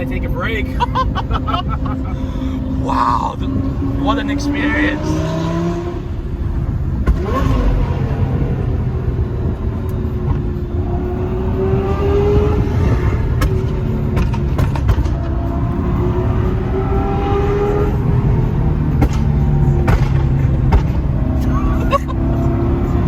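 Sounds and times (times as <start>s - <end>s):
car engine cruising: 0.0s - 23.0s
low road rumble: 0.0s - 23.0s.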